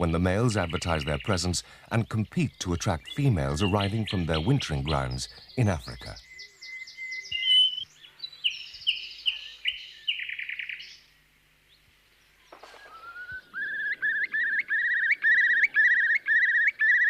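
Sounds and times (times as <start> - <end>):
nightingale singing: 0.0 - 17.0
curlew bubbling call: 6.0 - 7.9, 12.4 - 17.0.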